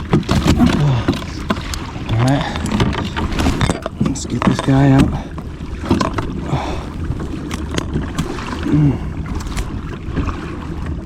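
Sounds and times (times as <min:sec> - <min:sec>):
fish and gear knocking in kayak: 0:00.0 - 0:11.0
wind and water rumble: 0:00.0 - 0:11.0
person grunting: 0:00.6 - 0:01.2, 0:08.6 - 0:09.1.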